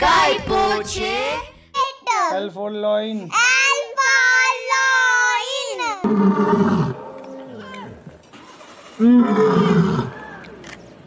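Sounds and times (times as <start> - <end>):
lion roaring: 6.0 - 8.2, 9.0 - 10.2.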